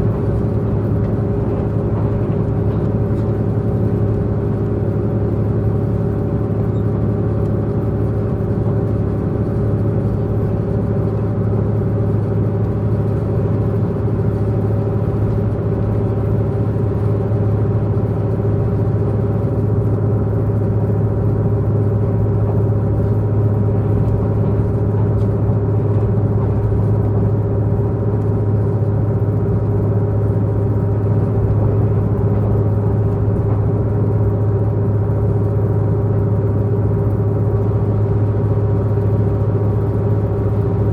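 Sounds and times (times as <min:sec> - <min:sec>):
train diesel engine drone: 0:00.0 - 0:40.9.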